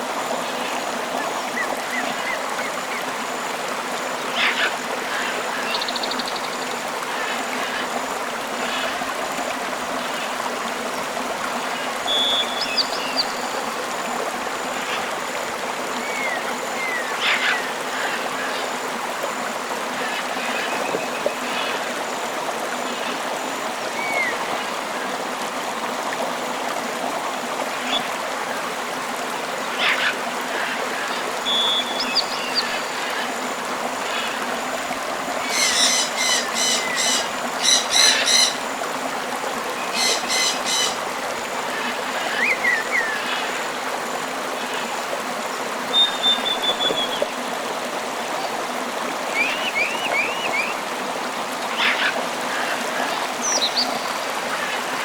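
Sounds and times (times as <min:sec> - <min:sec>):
river water rushing: 0:00.0 - 0:55.0
bird calls and chirps: 0:39.9 - 0:41.0.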